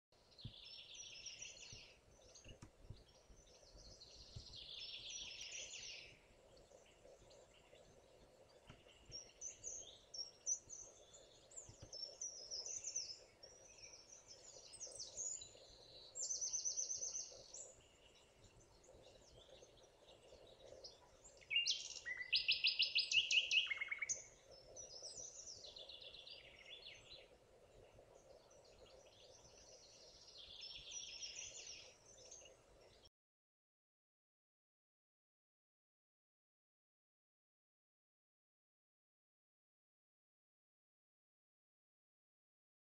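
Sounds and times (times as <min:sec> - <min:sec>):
faint steady background noise: 0:00.2 - 0:33.1
songbirds singing and trilling: 0:00.2 - 0:33.1.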